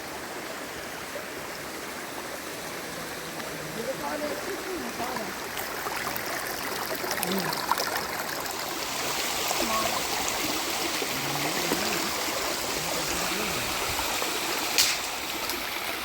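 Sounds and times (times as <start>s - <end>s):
stream water rushing: 0.0s - 16.0s
faint voices: 2.6s - 5.4s, 11.0s - 13.9s.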